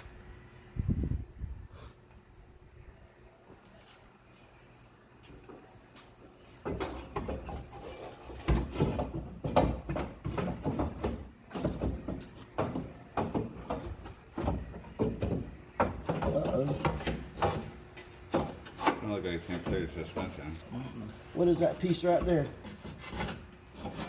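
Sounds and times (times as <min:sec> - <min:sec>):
hand tools knocking and clanking: 0:06.6 - 0:20.5, 0:21.3 - 0:24.0.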